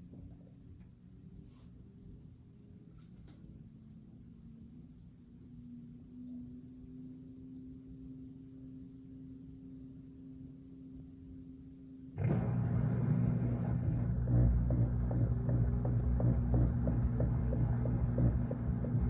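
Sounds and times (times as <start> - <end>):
washing machine running: 12.2 - 19.0.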